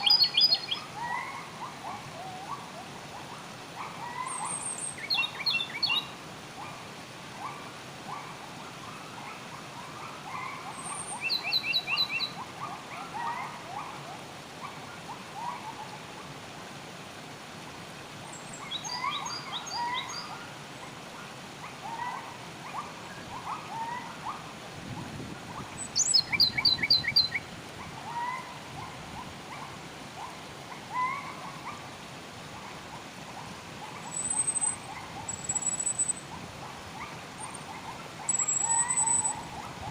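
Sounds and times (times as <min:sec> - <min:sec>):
birds singing: 0:00.0 - 0:02.6, 0:04.0 - 0:06.1, 0:10.3 - 0:13.9, 0:18.3 - 0:20.4, 0:21.8 - 0:29.7, 0:33.4 - 0:39.9
flowing water: 0:00.0 - 0:39.9
high rapid bird trills: 0:34.0 - 0:36.2, 0:37.0 - 0:39.7.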